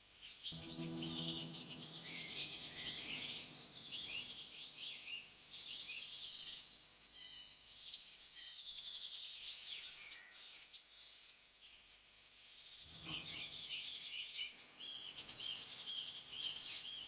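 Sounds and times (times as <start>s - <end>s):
birds chirping and trilling: 0.6s - 6.1s.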